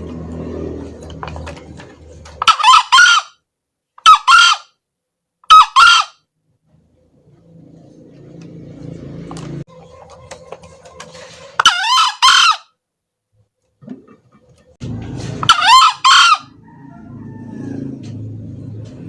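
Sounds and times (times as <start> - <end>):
junglefowl crowing: 2.4 - 3.4, 4.0 - 4.8, 5.5 - 6.2, 9.6 - 12.8, 15.4 - 18.6.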